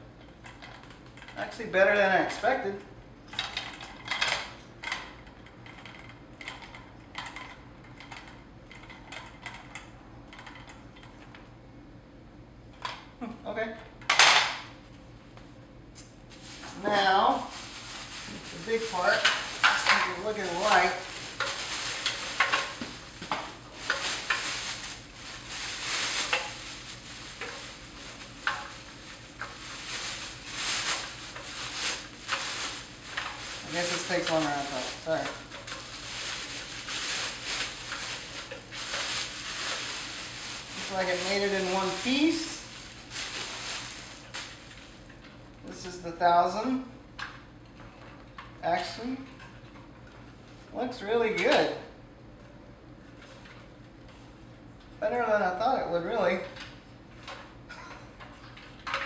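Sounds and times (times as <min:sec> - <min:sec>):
packaging rustling and crinkling: 0:16.3 - 0:45.6.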